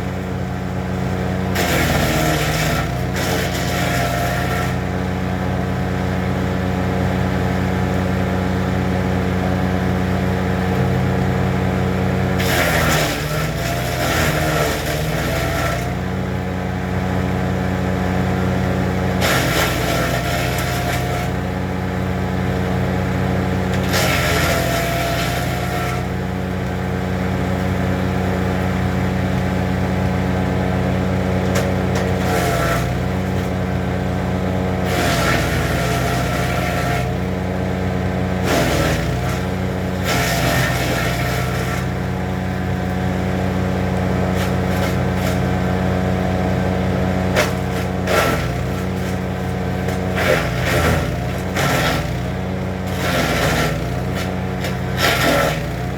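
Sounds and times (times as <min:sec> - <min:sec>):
wood chipper engine running: 0:00.0 - 0:55.9
wood chipping: 0:47.3 - 0:55.8.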